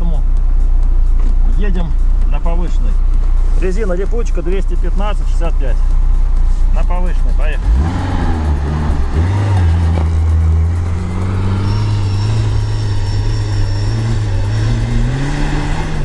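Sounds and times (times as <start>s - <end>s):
car engine pulling under load: 7.4s - 16.0s.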